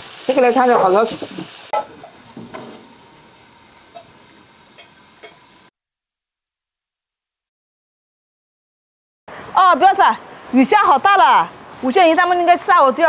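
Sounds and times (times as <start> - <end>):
food sizzling in a wok: 0.0 - 5.7.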